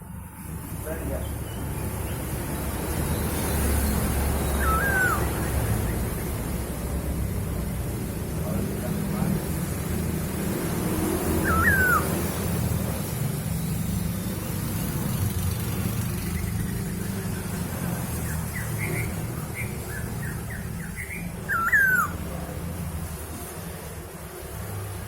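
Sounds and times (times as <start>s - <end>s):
bird swooping whistle: 4.4s - 5.6s, 11.4s - 12.3s, 19.9s - 22.2s.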